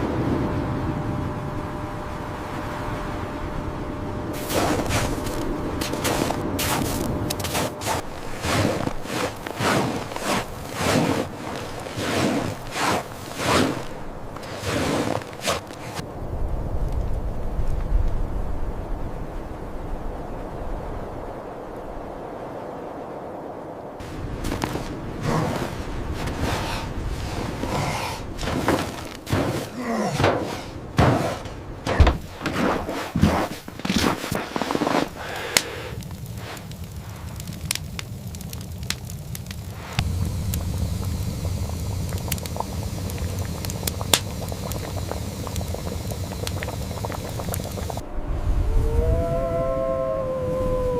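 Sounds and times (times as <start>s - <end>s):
footsteps crunching in snow: 4.4s - 16.0s, 24.0s - 35.2s
knocks and heavy thuds: 28.4s - 33.3s.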